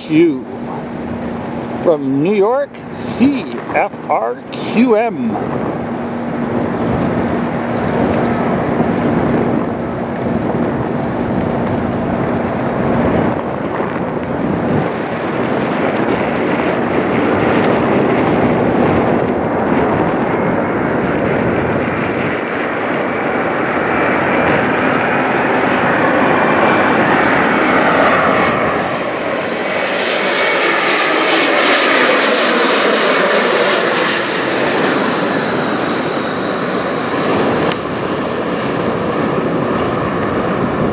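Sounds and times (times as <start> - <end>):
jet engines rushing: 0.0 - 40.9
jet fan whine falling in pitch: 0.0 - 40.9.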